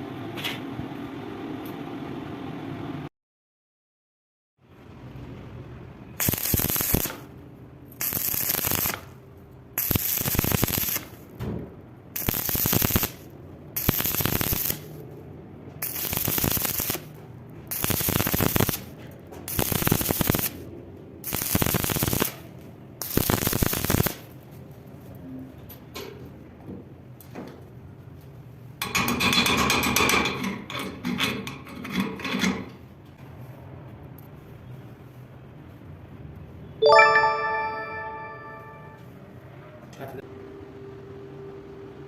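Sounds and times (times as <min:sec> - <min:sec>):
welding arc crackling: 0:06.2 - 0:07.3, 0:08.0 - 0:09.2, 0:09.8 - 0:11.2, 0:12.2 - 0:15.0, 0:15.8 - 0:17.1, 0:17.7 - 0:18.9, 0:19.5 - 0:20.6, 0:21.2 - 0:24.4.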